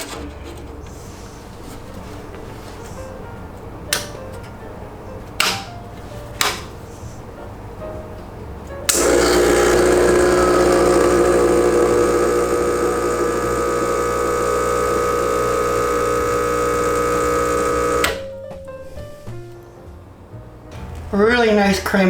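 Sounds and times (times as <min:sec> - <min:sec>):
espresso machine pump buzzing: 0:08.9 - 0:18.2.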